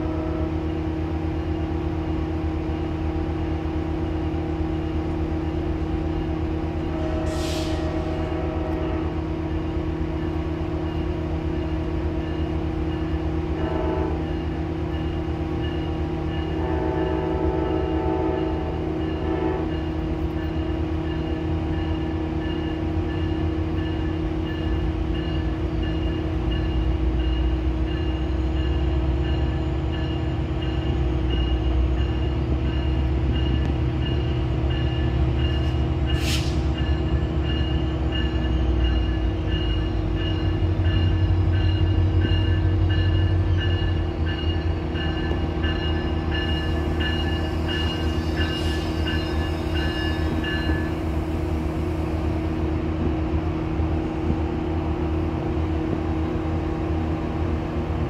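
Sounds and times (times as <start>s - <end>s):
diesel locomotive engine rumble: 0.0s - 58.0s
brief hiss: 36.2s - 36.7s.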